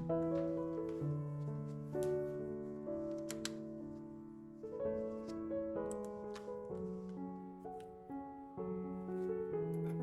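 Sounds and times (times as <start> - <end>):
calm piano music: 0.0 - 10.0
faint clicks: 3.1 - 3.6.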